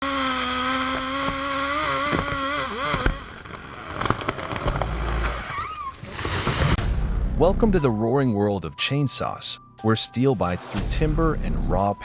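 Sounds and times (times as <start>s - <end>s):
chainsaw running at high revs: 0.0s - 5.5s.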